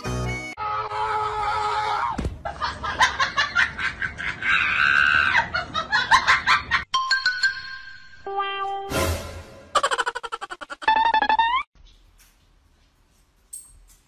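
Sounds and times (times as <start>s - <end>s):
people laughing and shrieking: 0.9s - 6.5s, 9.8s - 11.4s
thud: 2.2s - 2.4s.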